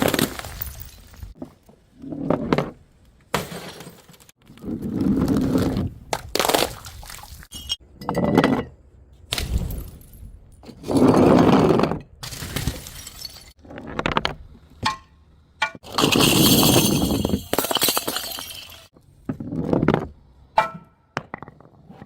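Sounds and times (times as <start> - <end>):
glass bottles shattering: 0.0 - 1.4, 7.5 - 8.4, 12.2 - 13.6, 15.8 - 18.9.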